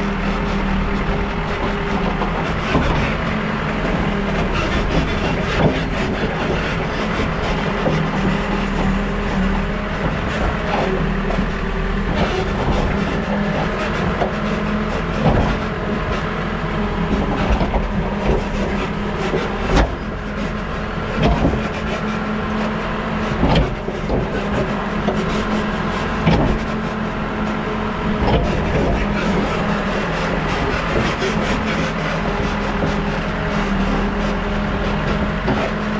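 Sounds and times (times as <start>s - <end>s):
diesel engine running: 0.0s - 35.9s
scattered knocks: 4.3s - 9.0s, 17.1s - 20.3s, 21.0s - 22.1s, 23.3s - 25.5s, 26.2s - 27.4s.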